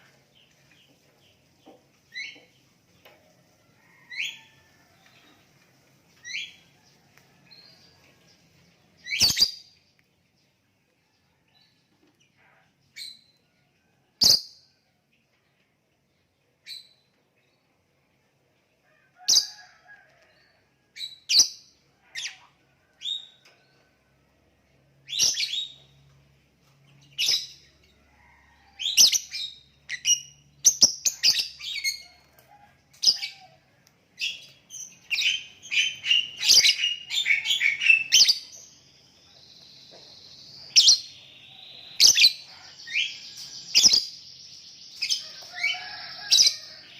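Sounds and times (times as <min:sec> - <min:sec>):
bird chirping: 0:00.0 - 0:03.2, 0:04.1 - 0:10.7, 0:25.0 - 0:27.9, 0:28.8 - 0:32.4, 0:34.2 - 0:46.9.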